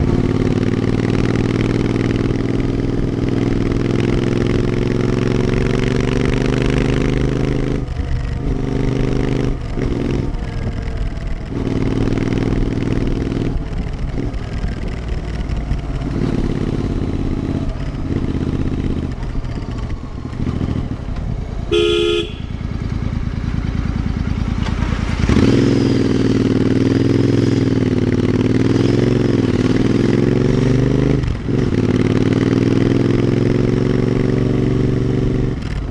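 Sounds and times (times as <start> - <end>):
motorcycle engine: 0.0 - 35.9
vehicle horn: 21.7 - 23.0.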